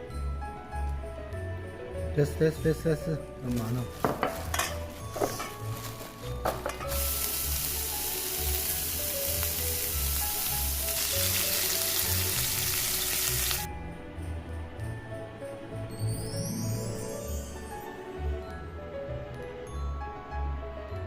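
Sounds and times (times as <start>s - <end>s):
background music: 0.0s - 21.0s
food sizzling in a frying pan: 4.0s - 13.7s.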